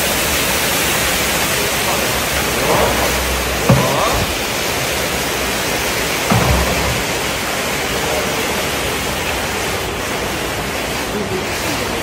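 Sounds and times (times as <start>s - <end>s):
dull knock: 3.6s - 4.4s, 6.3s - 7.2s.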